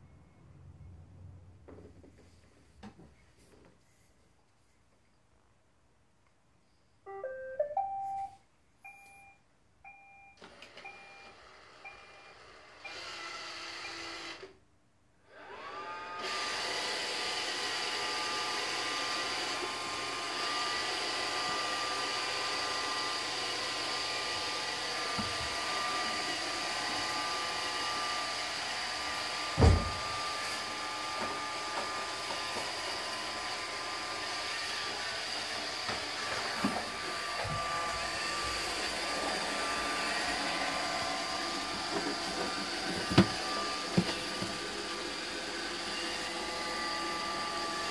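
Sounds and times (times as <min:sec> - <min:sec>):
robot vacuum rising tune: 0:07.1 - 0:08.3
robot vacuum beeps: 0:07.1 - 0:13.2, 0:13.8 - 0:14.2
vacuum motor whirr: 0:10.4 - 0:14.5, 0:15.3 - 0:47.9
thump: 0:29.6 - 0:30.1.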